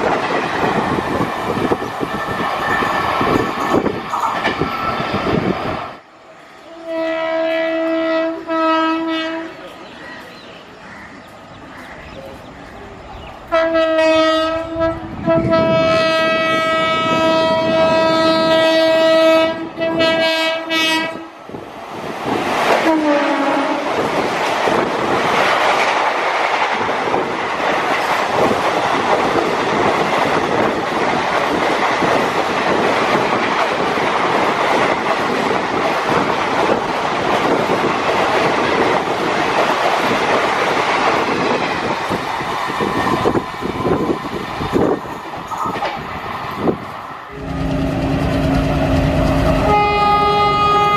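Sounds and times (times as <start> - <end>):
train rushing past: 0.0 - 50.9
locomotive horn blasts: 6.7 - 9.6, 13.5 - 21.3, 22.9 - 23.8, 47.3 - 50.9.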